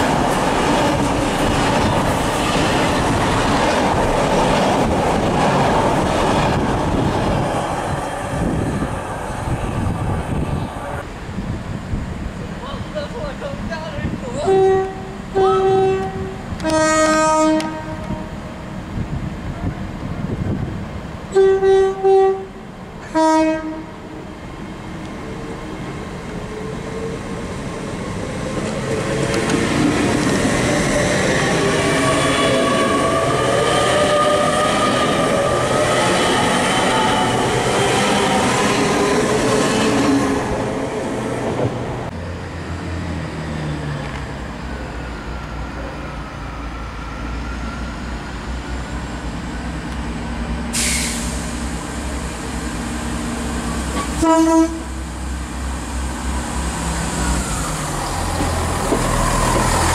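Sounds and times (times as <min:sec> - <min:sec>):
train passing rumble and whine: 0:00.0 - 0:59.9
two-tone train horn: 0:14.4 - 0:18.4, 0:21.3 - 0:24.0, 0:54.0 - 0:55.0.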